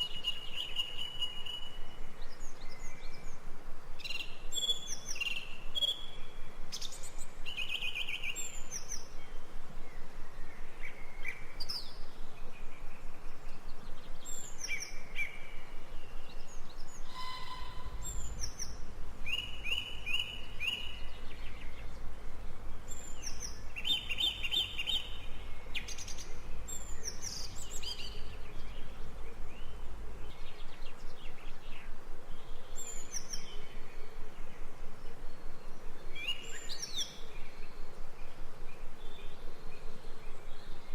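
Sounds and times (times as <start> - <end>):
birds chirping and calling: 16.7 - 21.7
low rumble: 17.1 - 18.8.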